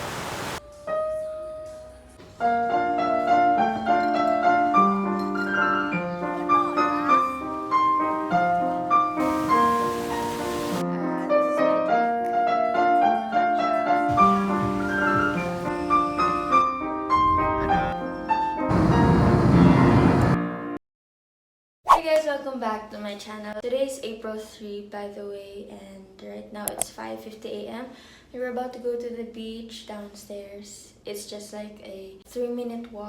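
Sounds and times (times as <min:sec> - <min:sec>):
solo piano melody: 0:00.5 - 0:10.8, 0:14.1 - 0:20.4.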